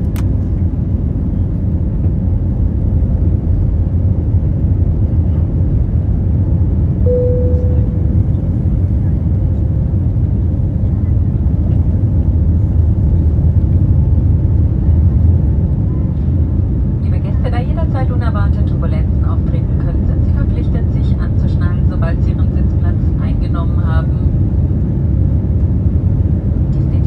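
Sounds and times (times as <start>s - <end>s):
airplane cabin rumble: 0.0s - 27.0s
short tone: 7.1s - 8.5s.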